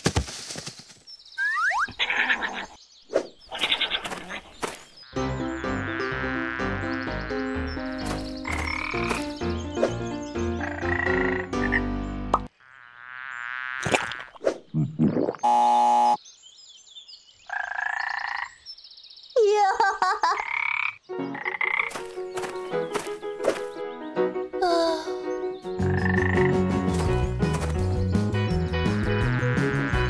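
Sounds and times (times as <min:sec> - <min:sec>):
frog croaking: 0:08.4 - 0:09.2, 0:10.6 - 0:11.9, 0:12.5 - 0:14.3, 0:17.5 - 0:18.7, 0:20.4 - 0:22.1, 0:25.8 - 0:26.6.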